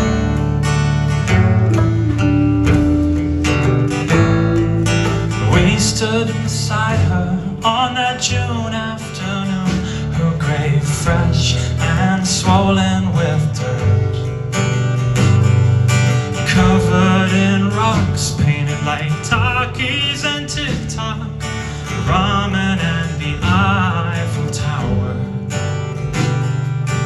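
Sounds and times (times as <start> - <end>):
sustained instruments: 0.0 - 6.7
strummed acoustic guitar: 0.0 - 27.0
person singing slow song: 1.4 - 14.4, 16.2 - 25.8.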